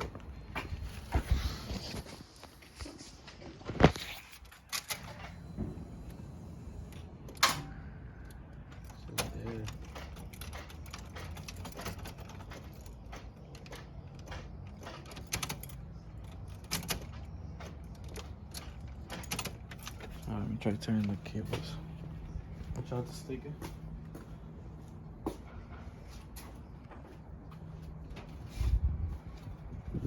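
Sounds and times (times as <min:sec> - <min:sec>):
metal clicks and knocks: 0:06.9 - 0:21.2.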